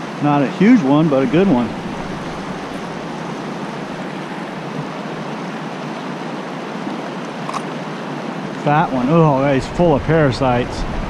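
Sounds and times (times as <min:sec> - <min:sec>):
creek current rushing: 0:00.0 - 0:11.0.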